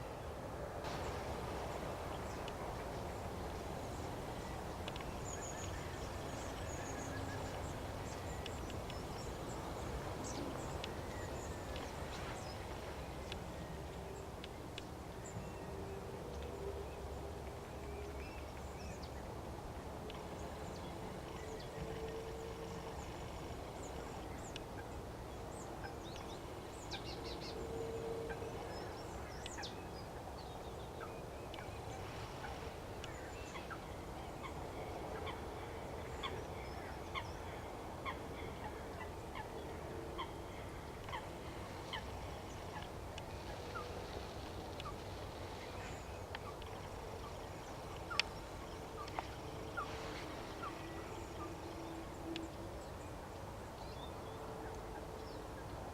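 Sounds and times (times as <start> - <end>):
outdoor background noise: 0.0 - 55.9
wetland birds calling: 31.5 - 52.6.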